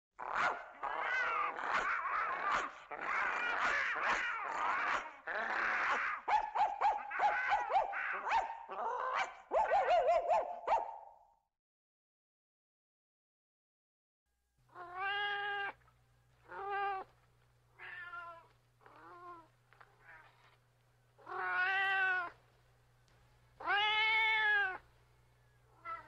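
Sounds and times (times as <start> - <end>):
cat meowing: 14.7 - 15.8, 16.4 - 17.1, 17.8 - 20.5, 21.2 - 22.4, 23.6 - 24.9, 25.8 - 26.0.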